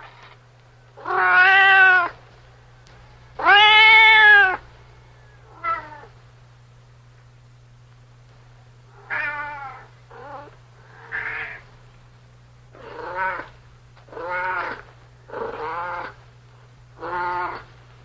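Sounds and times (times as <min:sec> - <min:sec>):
steady low hum: 0:00.0 - 0:18.0
cat meowing: 0:01.0 - 0:02.2, 0:03.4 - 0:04.6, 0:05.5 - 0:06.1, 0:09.0 - 0:11.6, 0:12.8 - 0:13.5, 0:14.1 - 0:14.8, 0:15.4 - 0:16.2, 0:17.0 - 0:17.7.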